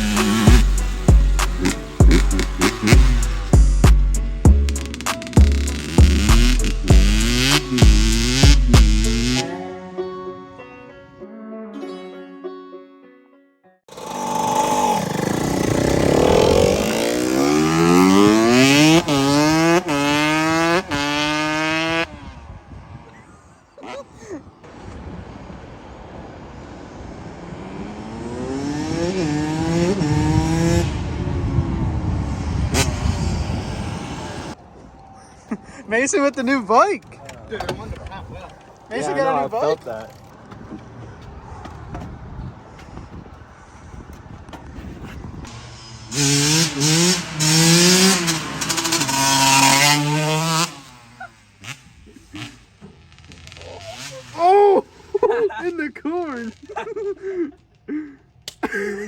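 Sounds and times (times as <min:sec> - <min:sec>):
dirt bike engine revving: 0:00.0 - 0:09.5, 0:13.9 - 0:22.6, 0:27.4 - 0:34.6, 0:45.4 - 0:55.3.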